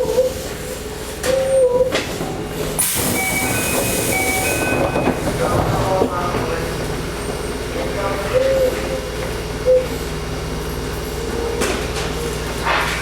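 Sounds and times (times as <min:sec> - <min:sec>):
train wheels on rail: 0:00.4 - 0:13.0
air hiss burst: 0:02.8 - 0:04.6.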